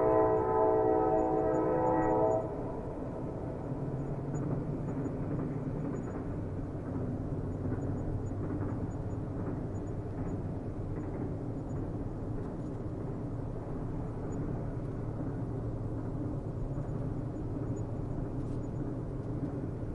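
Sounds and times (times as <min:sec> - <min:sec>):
train horn chord: 0:00.0 - 0:03.4
train rumbling on rails: 0:00.0 - 0:19.9.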